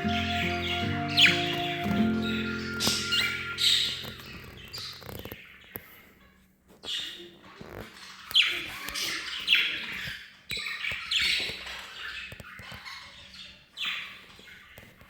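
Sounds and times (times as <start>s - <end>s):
sharp falling chirps: 0.0s - 5.2s
budgerigars chirping and chattering: 0.0s - 6.2s, 6.9s - 14.9s.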